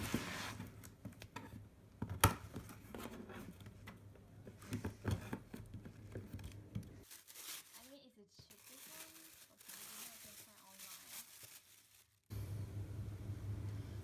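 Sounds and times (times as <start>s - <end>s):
clicks and knocks of objects handled: 0.8s - 7.1s
low steady hum: 12.3s - 14.0s.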